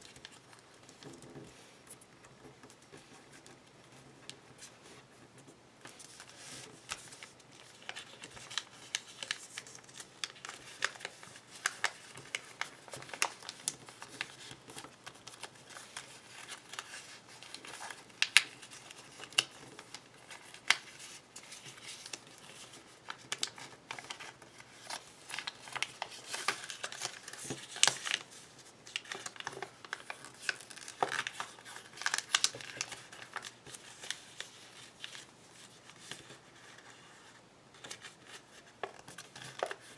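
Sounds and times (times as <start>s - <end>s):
paper crinkling and creasing: 0.0s - 39.9s.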